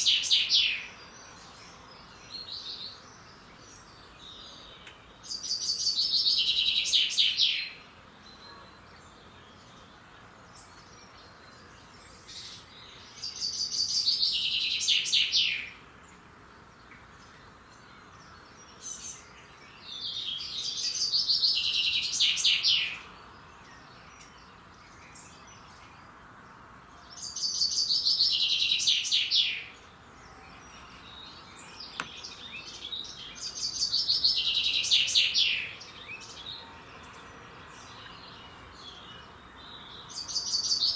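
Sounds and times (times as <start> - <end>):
faint outdoor hiss: 0.0 - 40.9
songbird singing falling phrase: 30.6 - 36.6.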